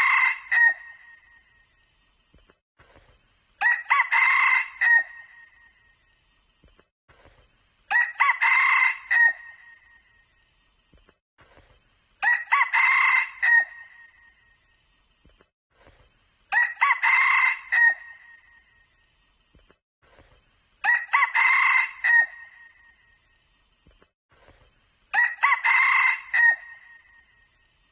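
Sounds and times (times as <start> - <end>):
rooster crowing: 0.0 - 1.0, 3.6 - 5.4, 7.9 - 9.6, 12.2 - 13.9, 16.5 - 18.2, 20.8 - 22.6, 25.1 - 27.1.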